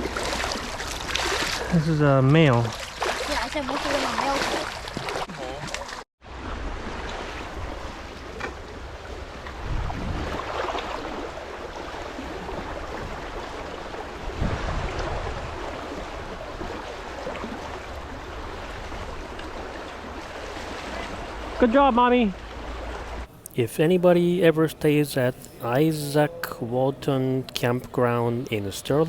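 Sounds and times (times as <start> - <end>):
fast river current rushing: 0.0 - 2.0, 2.6 - 29.0
wind buffeting microphone: 6.7 - 21.6.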